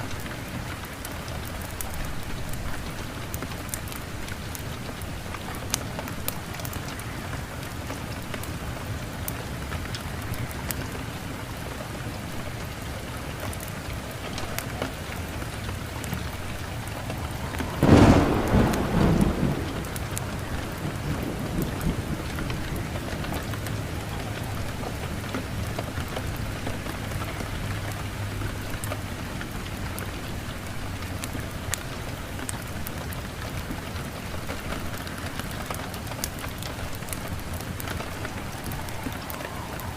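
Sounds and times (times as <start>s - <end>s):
steady rain falling: 0.0s - 39.9s
thunder clap rumbling: 15.3s - 26.5s, 36.0s - 39.9s.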